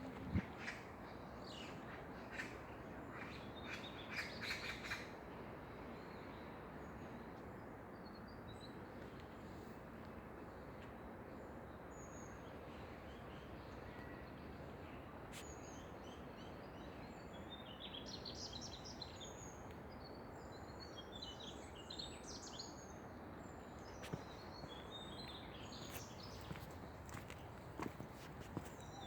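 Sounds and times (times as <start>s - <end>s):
small birds twittering: 23.8s - 29.0s.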